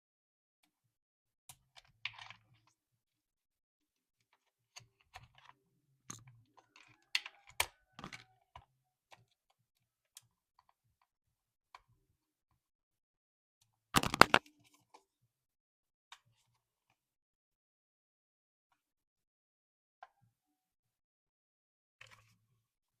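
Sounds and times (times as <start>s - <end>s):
toy and packaging handling noises: 14.0s - 15.0s.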